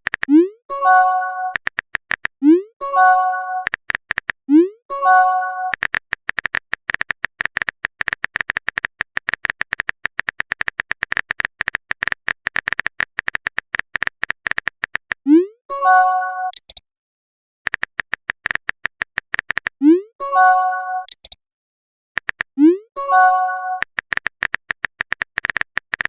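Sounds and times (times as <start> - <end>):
phone keyboard typing clicks: 0.0 - 4.4, 5.1 - 15.2, 16.5 - 16.8, 17.7 - 19.8, 21.0 - 21.4, 22.2 - 22.6, 23.2 - 26.0.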